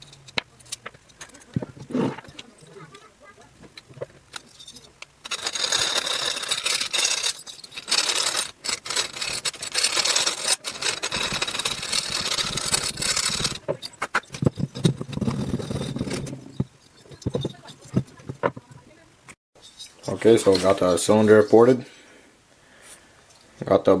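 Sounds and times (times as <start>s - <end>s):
hand file scraping metal: 4.4s - 17.9s.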